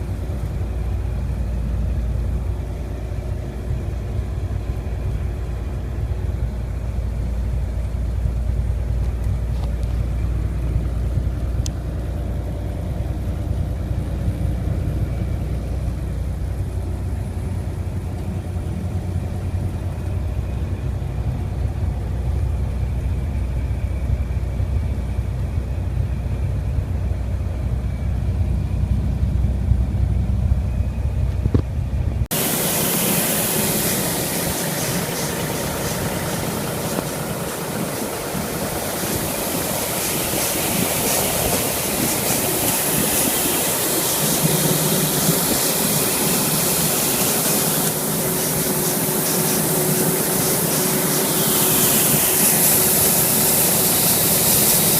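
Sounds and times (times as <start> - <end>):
truck engine rumbling: 0.0 - 54.9
loud even rushing noise: 32.3 - 54.9.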